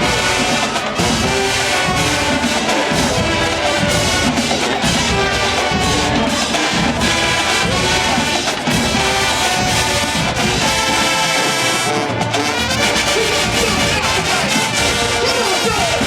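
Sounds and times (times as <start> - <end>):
brass instruments: 0.0 - 16.0
drumline beat: 0.0 - 16.0
marching band playing: 0.0 - 16.0.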